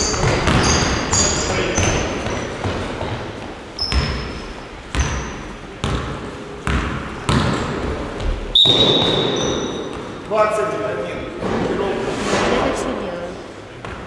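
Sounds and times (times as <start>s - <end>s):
short high squeaks: 0.0s - 1.5s
basketballs bouncing on hard floor: 0.0s - 10.3s.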